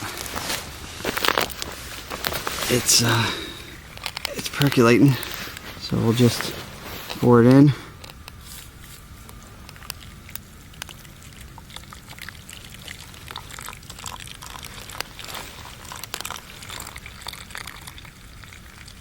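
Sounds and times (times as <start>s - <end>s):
hot water pouring from a cup: 11.5s - 19.0s.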